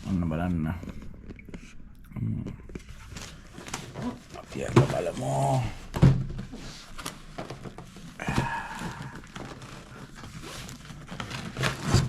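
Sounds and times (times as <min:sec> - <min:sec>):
packaging rustling and crinkling: 0:02.6 - 0:12.0
packaging tearing: 0:08.0 - 0:12.0.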